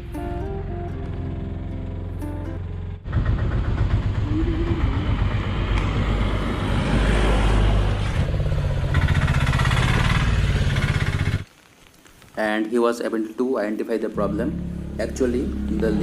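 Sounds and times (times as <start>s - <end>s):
background music: 0.0s - 3.0s, 14.0s - 16.0s
vehicle engine running roughly: 2.6s - 6.6s, 7.9s - 11.4s.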